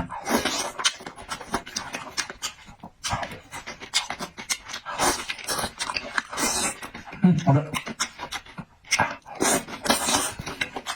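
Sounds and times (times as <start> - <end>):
wet chewing and smacking: 0.0 - 10.9
noisy breaths or slurps: 8.9 - 10.9.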